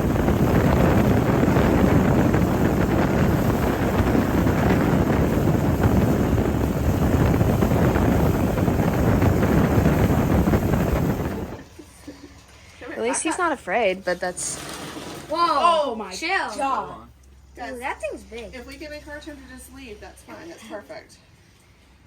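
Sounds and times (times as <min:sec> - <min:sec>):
wind buffeting microphone: 0:00.0 - 0:11.7
boat running across water: 0:00.0 - 0:11.8.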